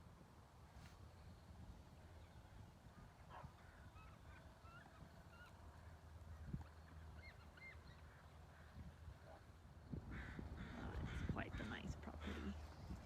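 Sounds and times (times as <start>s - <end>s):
faint bird chirps: 6.5s - 8.8s.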